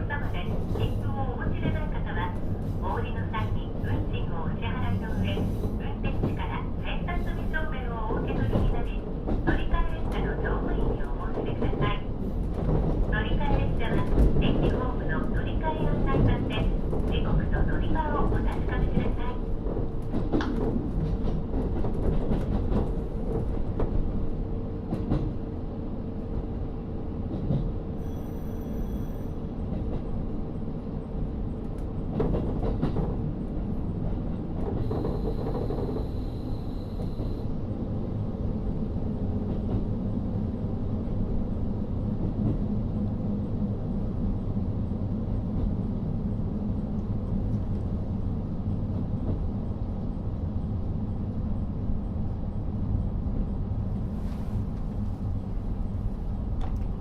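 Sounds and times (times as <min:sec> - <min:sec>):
railcar engine and wheels rumble: 0:00.0 - 0:57.0
rail clicks: 0:00.3 - 0:24.1, 0:54.2 - 0:57.0.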